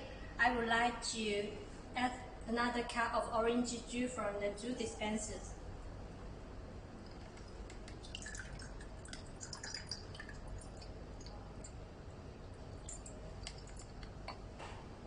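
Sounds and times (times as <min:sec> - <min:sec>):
juice trickling into a cup: 0:07.0 - 0:14.2.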